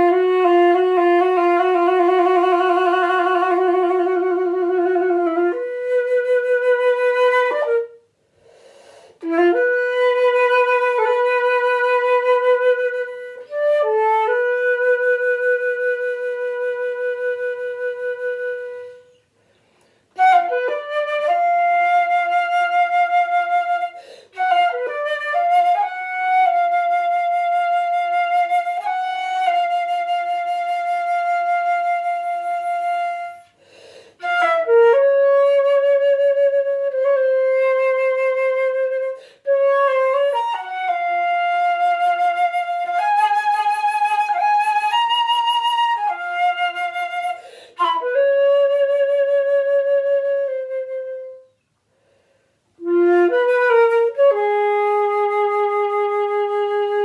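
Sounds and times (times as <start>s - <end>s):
flute playing: 0.0s - 19.4s, 20.1s - 51.6s, 52.8s - 57.0s.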